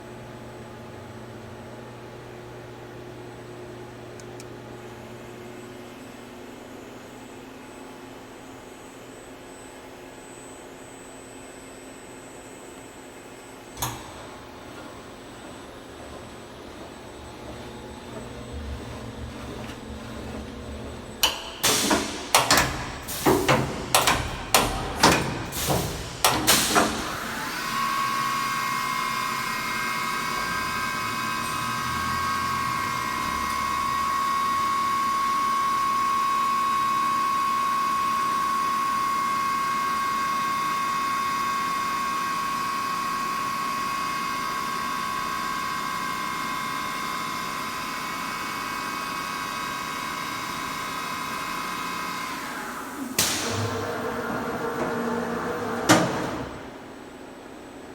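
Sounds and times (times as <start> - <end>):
cnc machine high-pitched whine: 27.1 - 53.2.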